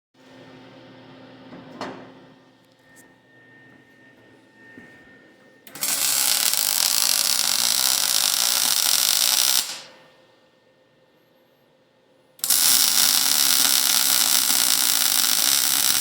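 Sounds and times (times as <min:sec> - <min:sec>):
electric welding arc: 0:05.7 - 0:10.0, 0:12.4 - 0:16.0.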